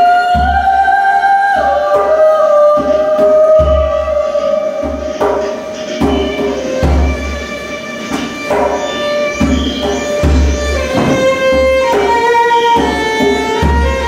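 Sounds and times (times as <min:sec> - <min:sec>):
violin playing long notes: 0:03.4 - 0:14.0
deep drum beat: 0:08.1 - 0:14.0.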